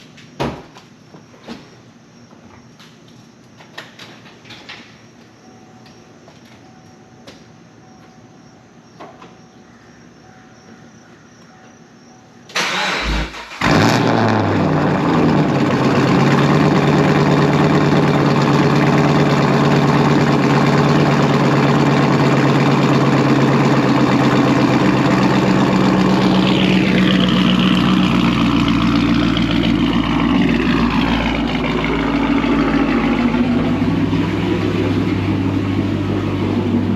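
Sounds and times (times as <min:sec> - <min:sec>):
car engine idling loudly: 0:13.6 - 0:36.9.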